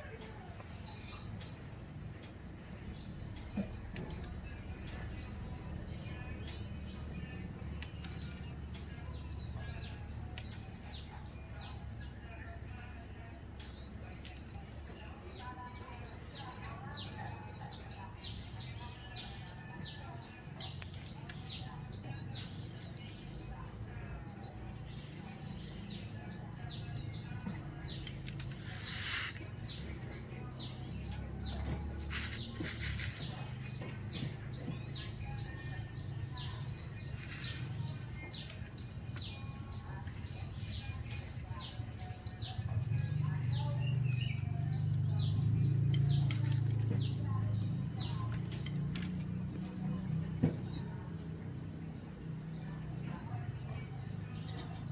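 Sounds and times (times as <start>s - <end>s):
sharp clicks: 26.9s - 30.3s, 44.3s - 50.2s.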